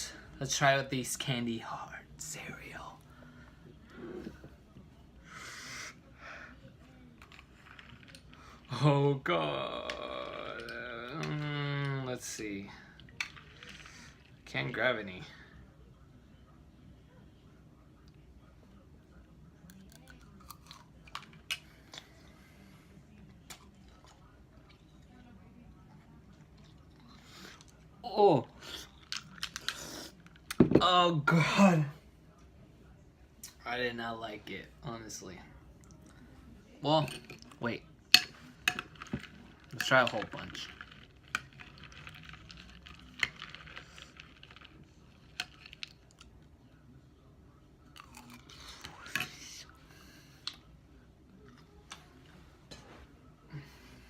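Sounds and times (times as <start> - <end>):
dry cereal clicking and rattling: 7.2 - 8.8, 9.7 - 14.7, 38.1 - 46.4.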